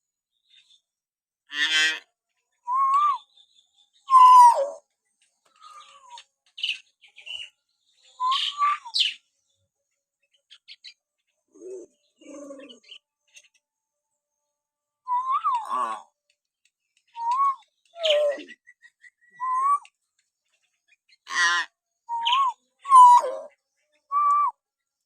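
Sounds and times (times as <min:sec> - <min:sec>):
myna whistles and calls: 0:04.1 - 0:04.8, 0:08.2 - 0:09.2, 0:15.1 - 0:16.0, 0:17.1 - 0:19.9, 0:22.1 - 0:24.6.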